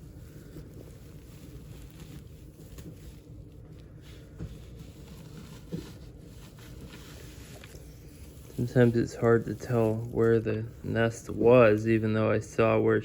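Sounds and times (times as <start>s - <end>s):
hands scraping through soil: 4.6s - 12.2s.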